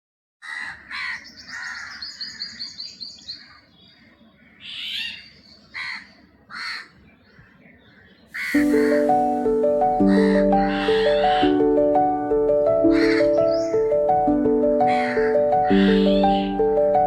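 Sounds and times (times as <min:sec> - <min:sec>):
harsh bird calls: 0:00.4 - 0:11.7, 0:12.8 - 0:14.1, 0:14.8 - 0:16.6
high bird chirps: 0:01.0 - 0:06.2, 0:07.0 - 0:11.6, 0:12.8 - 0:14.2
music: 0:08.5 - 0:17.0.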